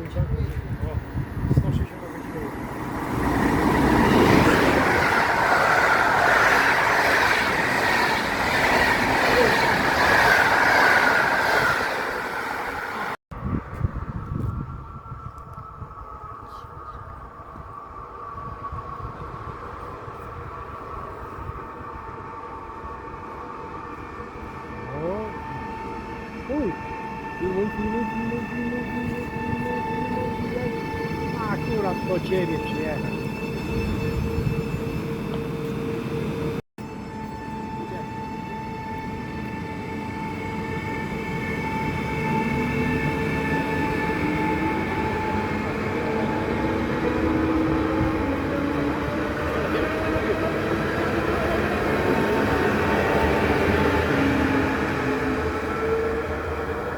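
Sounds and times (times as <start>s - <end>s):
train rumbling past: 0.0s - 56.9s
steady whining tones: 13.8s - 51.2s.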